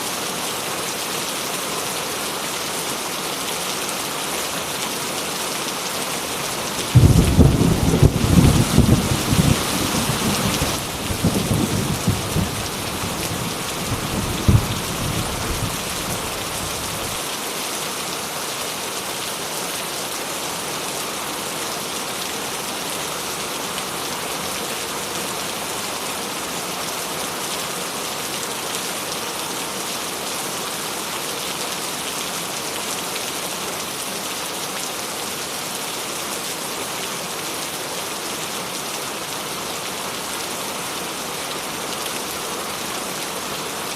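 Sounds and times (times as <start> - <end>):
heavy rain falling: 0.0 - 43.9
thunder rumble with cracks: 6.9 - 17.2.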